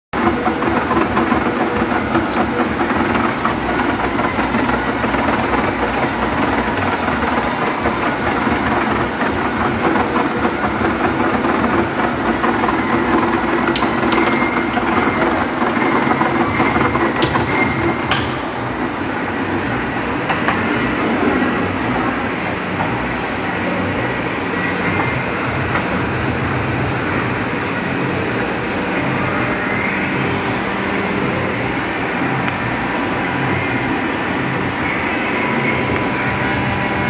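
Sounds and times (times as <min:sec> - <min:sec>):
lathe running: 0:00.2 - 0:37.0.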